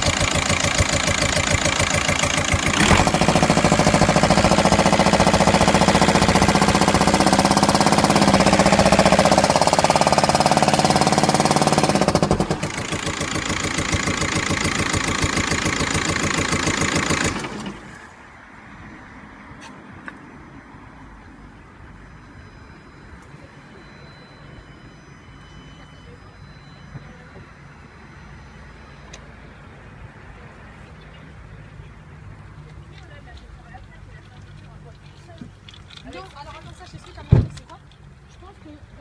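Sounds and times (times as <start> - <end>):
engine with rapid knocking: 0.0 - 18.0.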